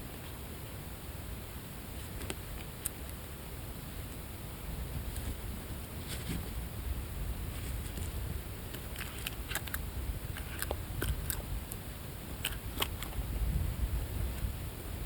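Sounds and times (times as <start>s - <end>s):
steady low rumble: 0.0s - 15.0s
birds pecking at biscuits: 7.7s - 13.2s.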